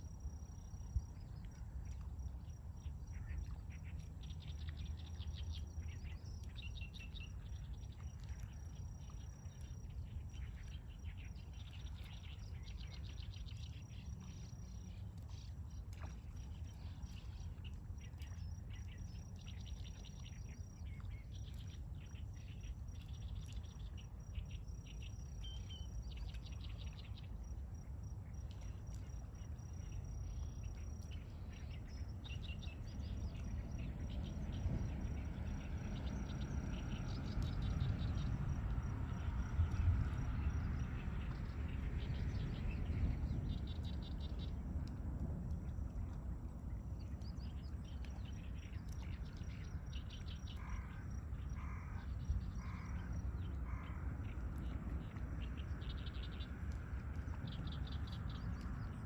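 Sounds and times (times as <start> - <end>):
steady low rumble: 0.0 - 59.0
small birds chirping: 2.1 - 45.0.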